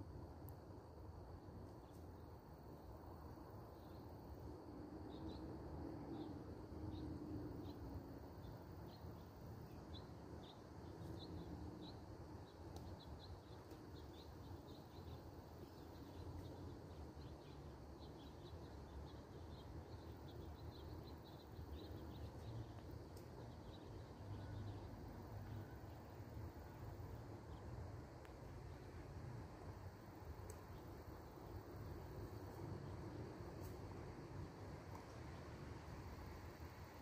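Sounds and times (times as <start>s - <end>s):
small birds chirping: 6.1s - 29.0s.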